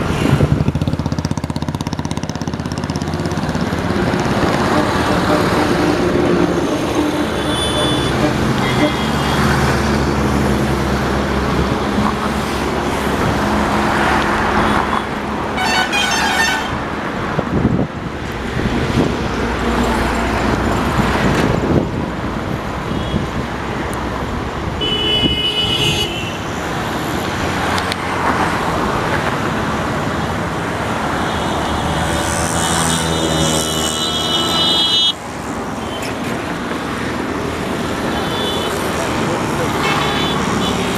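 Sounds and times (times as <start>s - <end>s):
road traffic noise: 0.0s - 40.9s
vehicle horns honking: 4.5s - 9.9s, 14.5s - 16.8s, 24.8s - 26.5s, 33.4s - 35.2s, 38.0s - 38.9s, 39.7s - 40.9s.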